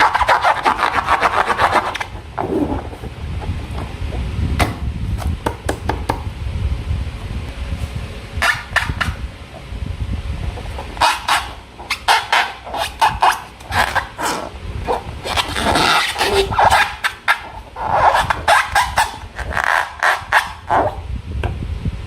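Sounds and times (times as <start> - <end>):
low handling rumble: 1.8 - 8.4, 9.0 - 12.8.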